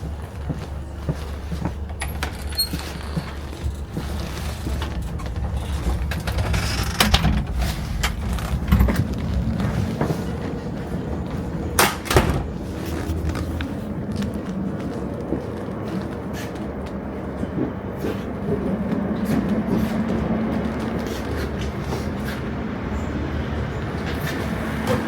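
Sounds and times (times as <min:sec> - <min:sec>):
train running rumble: 0:00.0 - 0:25.0
sharp knocks and rattles: 0:01.8 - 0:10.2.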